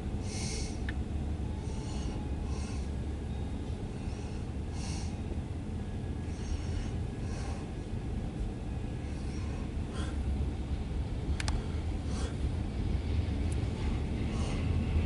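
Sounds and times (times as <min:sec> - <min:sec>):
freight train rumbling past: 0:00.0 - 0:15.0.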